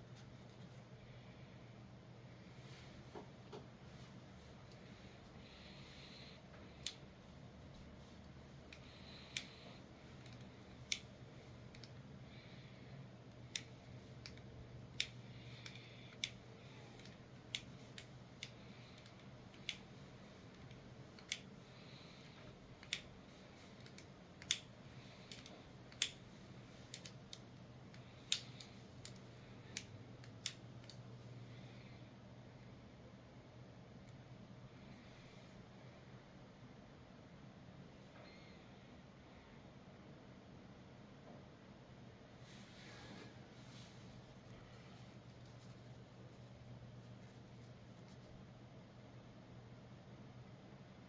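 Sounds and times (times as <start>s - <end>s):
multitool metal clicks: 13.3s - 31.1s.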